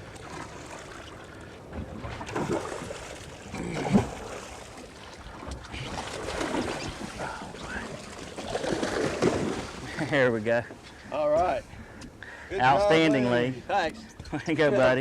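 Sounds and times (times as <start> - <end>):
water washing around boat: 0.0 - 10.6.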